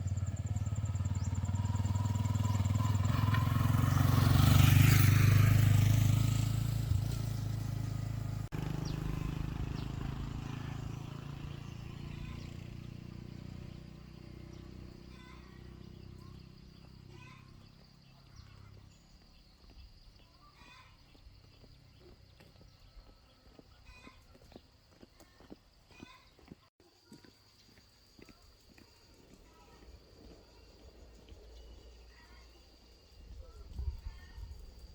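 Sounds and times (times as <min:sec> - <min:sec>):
engine running: 0:00.0 - 0:17.1.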